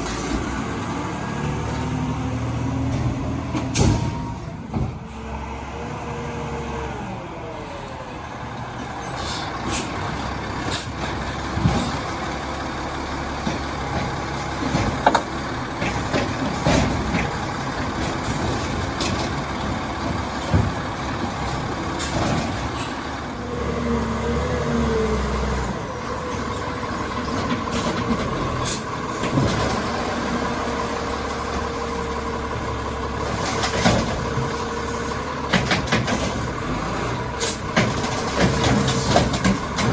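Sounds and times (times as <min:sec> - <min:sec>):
garbage truck engine running: 0:00.0 - 0:39.9
air brake hisses: 0:09.1 - 0:10.0.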